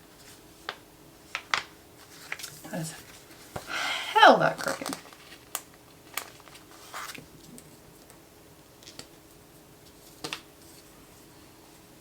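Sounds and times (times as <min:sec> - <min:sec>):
faint hum: 0:00.0 - 0:10.0
paper rustling: 0:00.2 - 0:03.6, 0:04.6 - 0:07.2.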